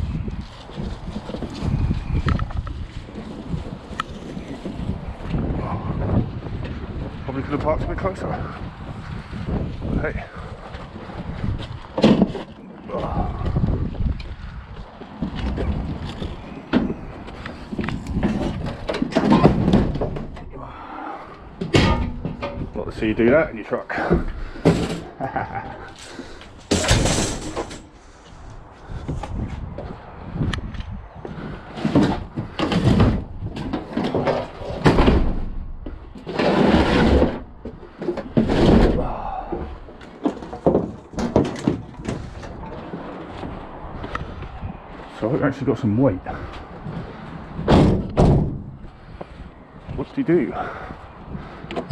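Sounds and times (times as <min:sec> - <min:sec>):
wind buffeting microphone: 0:00.0 - 0:51.9
knocks and clunks: 0:11.4 - 0:13.7, 0:14.3 - 0:28.0, 0:29.0 - 0:44.8, 0:46.3 - 0:49.4
scrap metal crashing and clattering: 0:21.6 - 0:22.8, 0:26.6 - 0:28.0.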